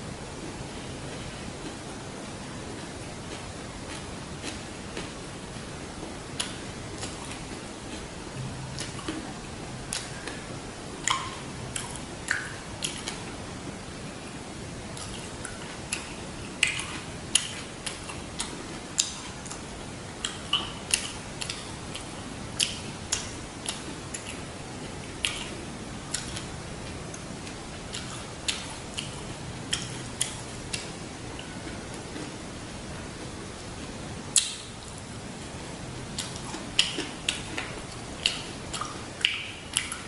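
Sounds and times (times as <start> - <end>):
steady hiss: 0.0 - 40.0
chewing with wet mouth smacks: 20.2 - 26.5, 27.1 - 32.4, 36.2 - 40.0.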